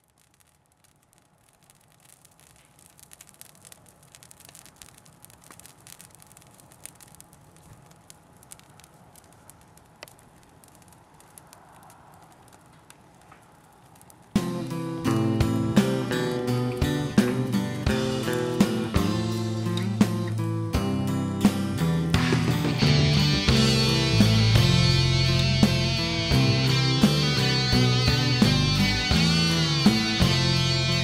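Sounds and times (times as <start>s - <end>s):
faint pops and snaps: 0.0s - 14.5s
cuttings crackling as they burn: 0.0s - 20.8s
acoustic guitar music: 14.4s - 31.0s.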